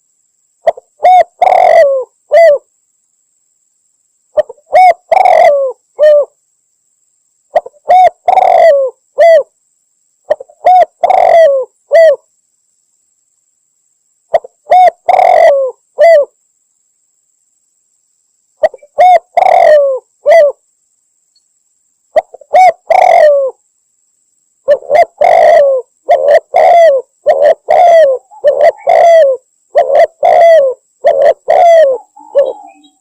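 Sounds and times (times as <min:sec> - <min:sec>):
dove cooing: 0:00.6 - 0:02.7, 0:04.4 - 0:06.4, 0:07.5 - 0:09.5, 0:10.3 - 0:12.2, 0:14.3 - 0:16.4, 0:18.6 - 0:20.6, 0:22.2 - 0:23.6, 0:24.6 - 0:33.0.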